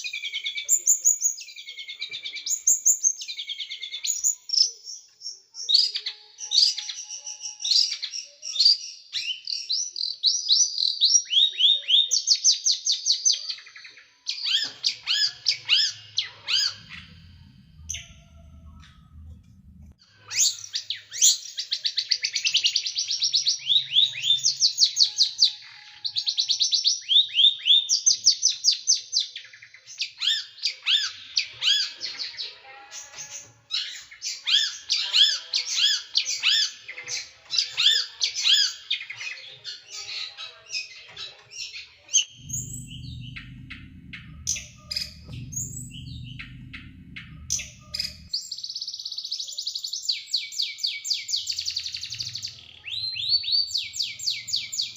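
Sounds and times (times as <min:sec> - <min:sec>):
low rumble: 0:15.7 - 0:20.0, 0:42.3 - 0:48.4.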